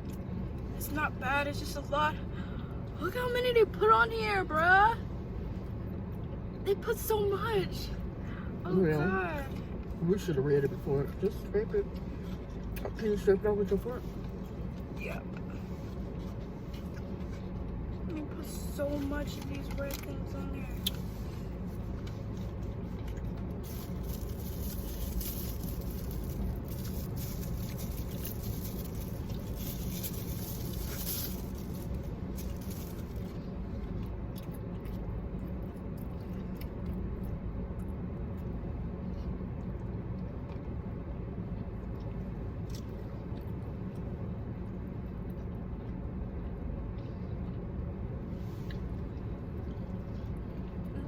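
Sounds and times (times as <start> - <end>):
steady low hum: 0.0 - 51.0
chewing food: 21.7 - 40.7.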